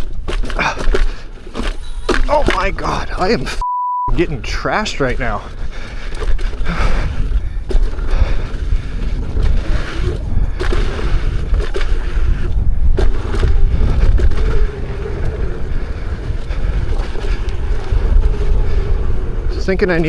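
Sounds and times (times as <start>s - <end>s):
wind on microphone: 0.0s - 20.0s
low rumble: 5.4s - 20.0s.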